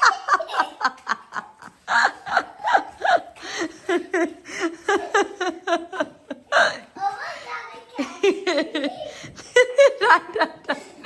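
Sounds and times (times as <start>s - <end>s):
child laughing: 0.0s - 6.8s, 7.9s - 11.0s
people giggling and snickering: 0.0s - 6.8s, 8.0s - 11.0s.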